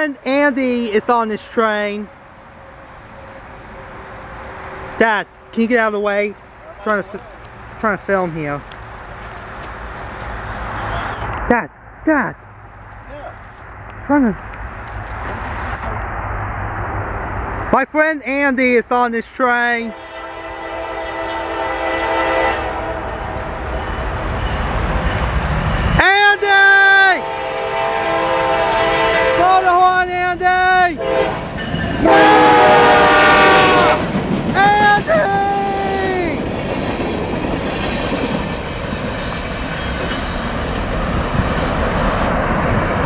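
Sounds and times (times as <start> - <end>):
train rumbling past: 0.0 - 43.0
locomotive air horn chord: 19.9 - 23.4, 27.2 - 29.9, 31.0 - 34.1.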